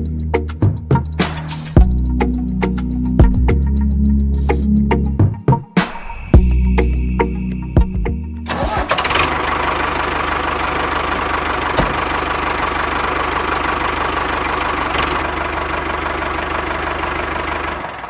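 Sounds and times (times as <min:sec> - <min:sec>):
engine idling with knocking: 0:08.5 - 0:18.0.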